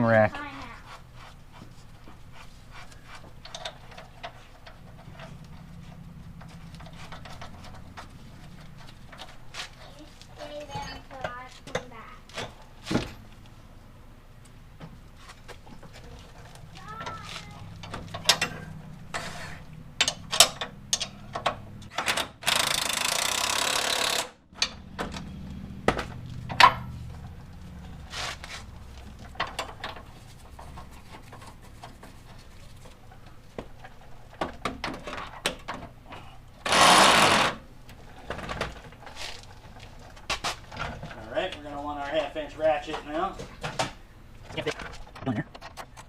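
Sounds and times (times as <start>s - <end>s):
impact wrench bursts: 22.0s - 24.4s, 36.6s - 37.6s.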